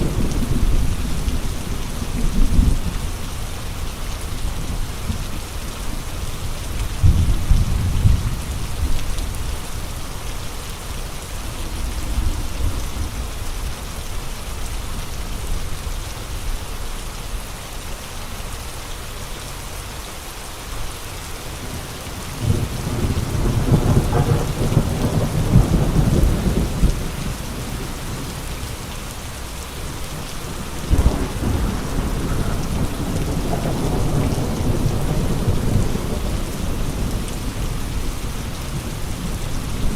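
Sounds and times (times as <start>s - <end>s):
steady rain: 0.0s - 39.9s
gusty storm wind: 21.5s - 39.9s.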